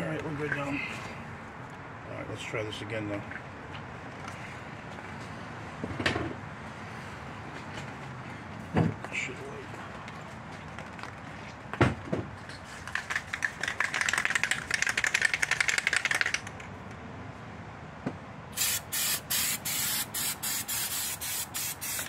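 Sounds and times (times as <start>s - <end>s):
aerosol spray hissing: 18.6s - 22.0s.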